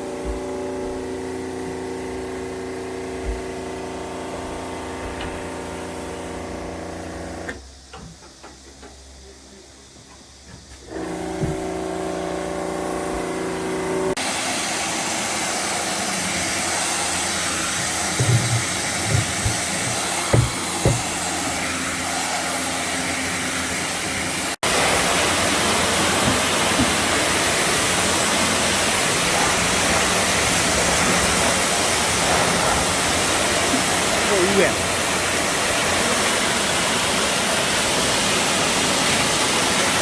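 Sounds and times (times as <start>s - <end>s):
loud rushing hiss: 10.8s - 40.0s
machine motor humming: 10.8s - 40.0s.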